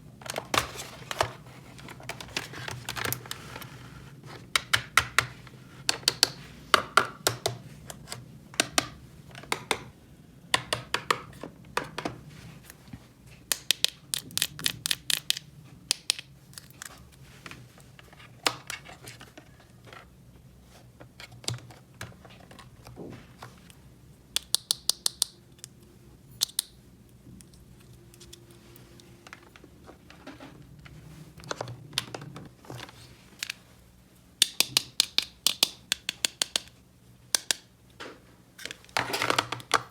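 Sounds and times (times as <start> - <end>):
plastic toy pieces clicking: 13.5 - 16.8, 24.4 - 25.7, 26.4 - 26.7, 34.4 - 37.7.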